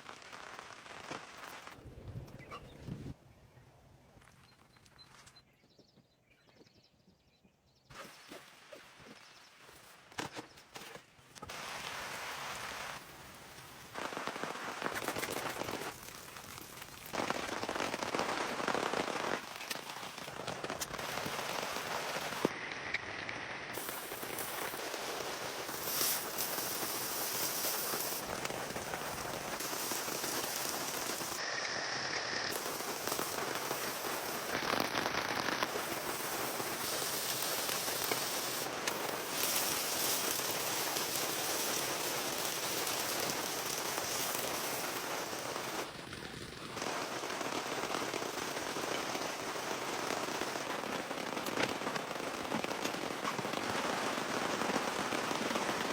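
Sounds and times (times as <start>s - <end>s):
rain pattering: 0.0s - 1.8s, 11.4s - 23.1s, 23.7s - 31.4s, 32.4s - 55.9s.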